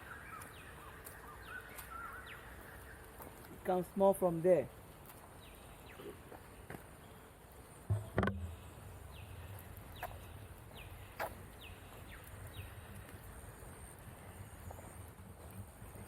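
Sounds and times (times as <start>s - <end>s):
knocks: 7.9s - 8.5s.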